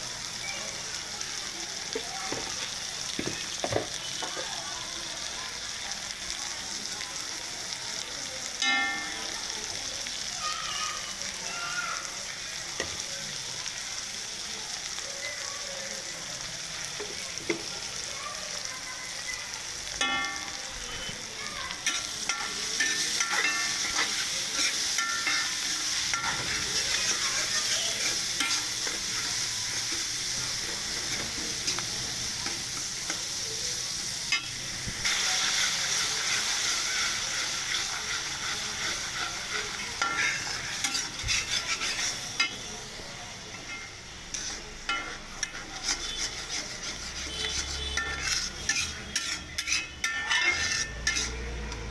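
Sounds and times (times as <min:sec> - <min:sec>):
spices sizzling in oil: 0:00.0 - 0:51.9
spoon scraping pan: 0:20.0 - 0:33.4, 0:34.2 - 0:42.7, 0:43.5 - 0:51.9.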